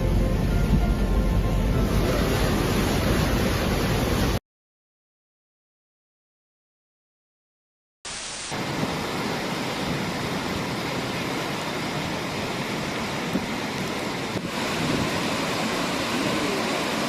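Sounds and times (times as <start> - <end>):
floodwater rushing: 0.0 - 4.4, 8.3 - 17.0.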